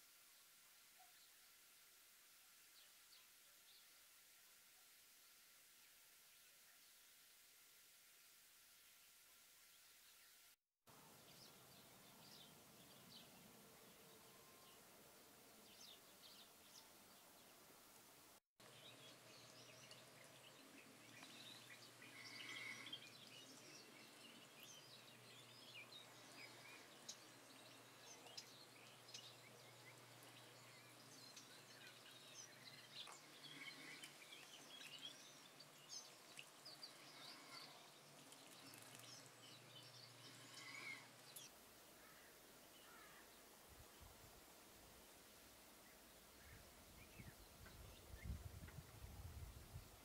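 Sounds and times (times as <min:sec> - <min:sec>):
background hiss: 0:00.0 - 0:50.0
small birds chirping: 0:18.6 - 0:44.2.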